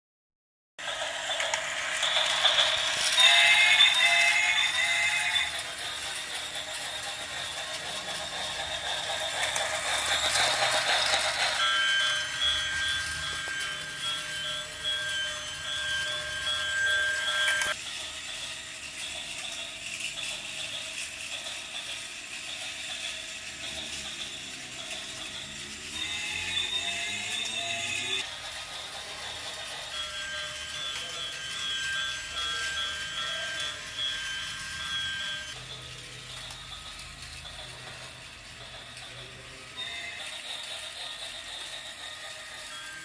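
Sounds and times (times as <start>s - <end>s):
toy gear motor rattling: 0.8s - 43.0s
toy electronic sound effect: 0.9s - 42.7s.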